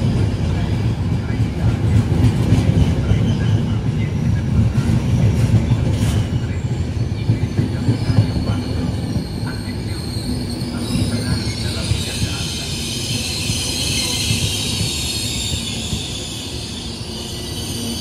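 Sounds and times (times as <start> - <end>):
train wheels rumbling on rails: 0.0 - 18.0
high wheel squeal: 8.0 - 18.0.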